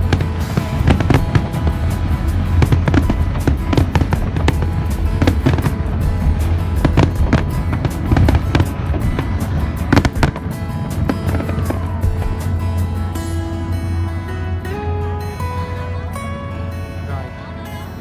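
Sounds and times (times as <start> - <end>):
loud music with heavy bass: 0.0 - 17.0
fireworks bangs and crackles: 0.1 - 12.6.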